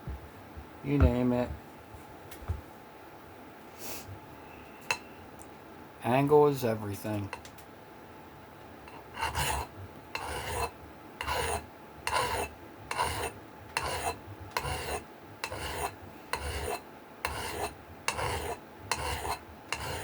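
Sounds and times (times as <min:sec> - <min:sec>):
file rasping on steel: 0:08.9 - 0:20.0.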